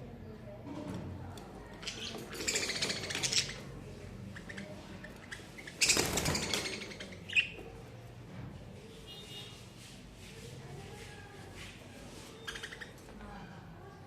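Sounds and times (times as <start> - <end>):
budgies flapping wings: 1.8 - 3.6, 5.2 - 7.5.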